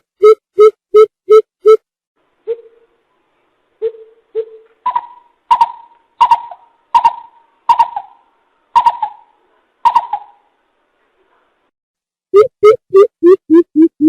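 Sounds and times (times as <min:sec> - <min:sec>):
bird deep hooting calls: 0:03.8 - 0:10.4.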